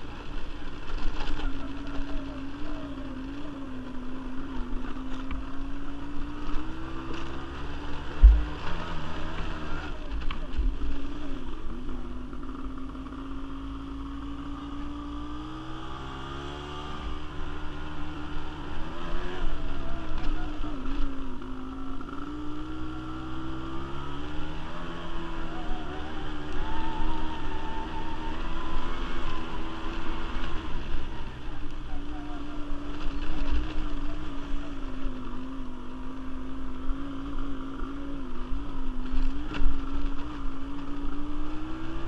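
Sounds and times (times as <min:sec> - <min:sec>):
quad bike engine running: 0:00.0 - 0:42.0
low thumps: 0:08.1 - 0:08.7.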